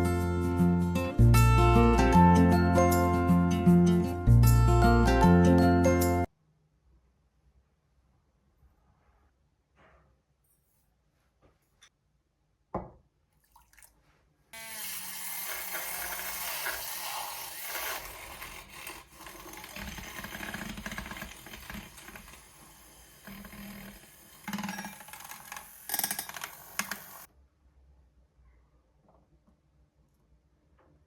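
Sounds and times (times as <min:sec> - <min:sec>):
knock: 0:12.7 - 0:13.0
water running into sink: 0:15.2 - 0:27.3.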